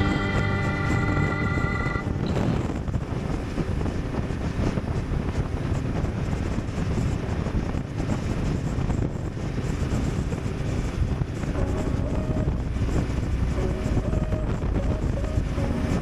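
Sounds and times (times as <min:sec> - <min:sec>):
motorcycle engine: 0:00.0 - 0:02.9
road noise: 0:00.0 - 0:16.0
wind buffeting microphone: 0:00.0 - 0:16.0.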